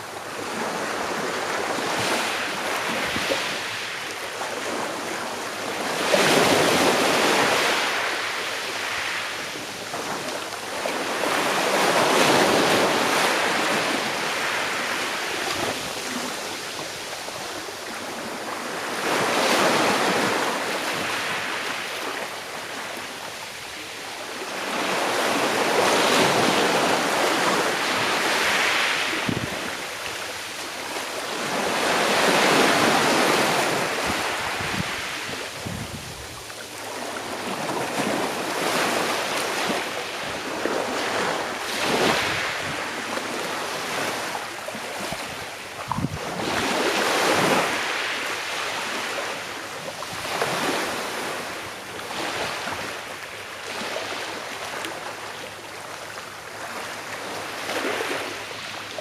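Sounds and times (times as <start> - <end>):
sea waves washing onto shore: 0.0 - 59.0
wind buffeting microphone: 34.0 - 36.4, 45.8 - 46.7.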